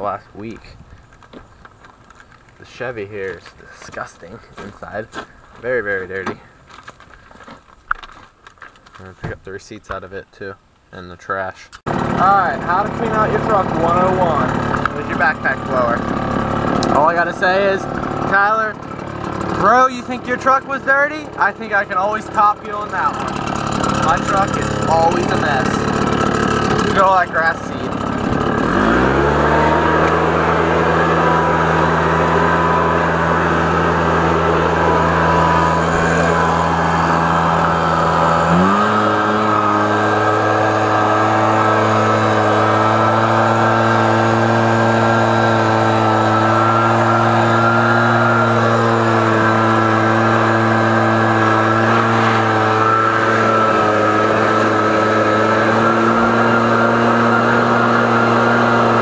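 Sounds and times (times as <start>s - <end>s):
leaf blower running: 11.9s - 59.0s.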